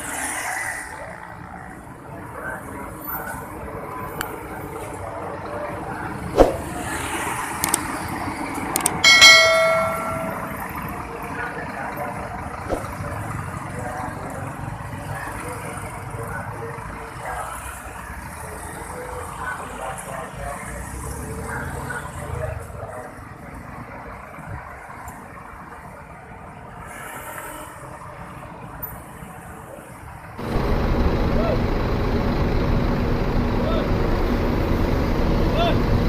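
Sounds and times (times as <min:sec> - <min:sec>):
vehicle engines running: 0:02.8 - 0:17.2, 0:30.4 - 0:36.0
sharp clicks: 0:08.7 - 0:09.0
short ringing chime: 0:09.0 - 0:10.8.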